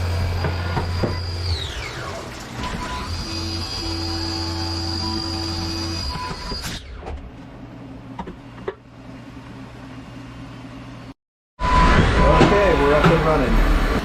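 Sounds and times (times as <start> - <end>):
milling machine humming: 0.0 - 6.5.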